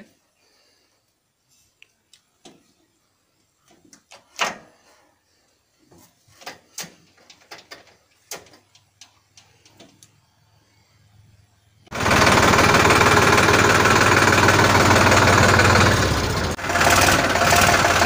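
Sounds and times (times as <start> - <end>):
knocks and clicks of tractor handling: 2.4 - 2.7, 3.6 - 4.7, 5.9 - 10.2.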